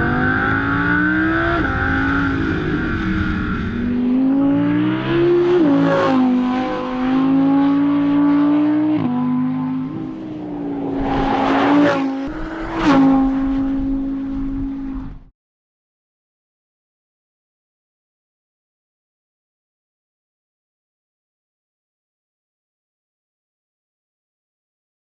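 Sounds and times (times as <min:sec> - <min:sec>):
car engine running hard: 0:00.0 - 0:15.3.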